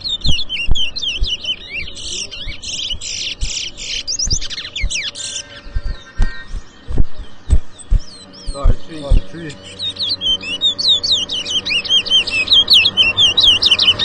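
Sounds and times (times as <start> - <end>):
finches singing: 0.0 - 14.0
low thuds: 0.2 - 1.4, 2.8 - 9.6.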